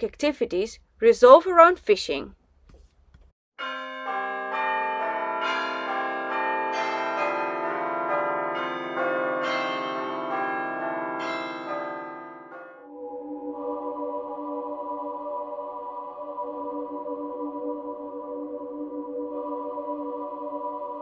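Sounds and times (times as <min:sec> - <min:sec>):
church bells ringing: 0:03.6 - 0:13.0.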